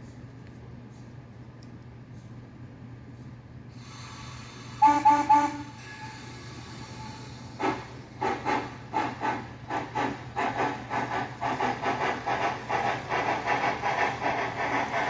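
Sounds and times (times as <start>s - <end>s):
model steam locomotive chuffs: 3.8s - 15.0s.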